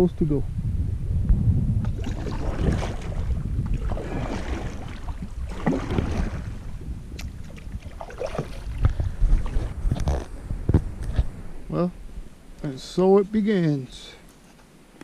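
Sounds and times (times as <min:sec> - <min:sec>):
steady low rumble: 0:00.0 - 0:14.3
kayak paddle splashing in water: 0:01.8 - 0:09.8.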